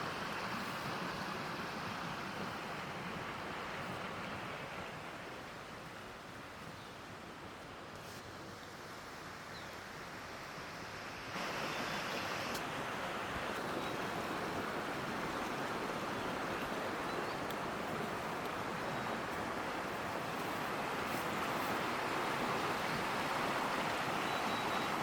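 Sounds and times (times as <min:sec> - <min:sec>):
water rushing: 0:08.7 - 0:25.0.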